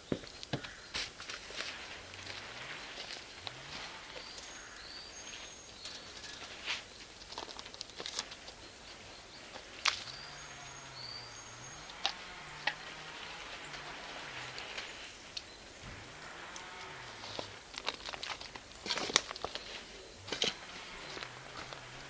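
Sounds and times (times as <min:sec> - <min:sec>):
charcoal fire crackling: 0:00.0 - 0:22.0
high bird chirps: 0:04.1 - 0:07.0, 0:09.2 - 0:15.8
charcoal popping: 0:05.8 - 0:10.2, 0:13.6 - 0:22.0.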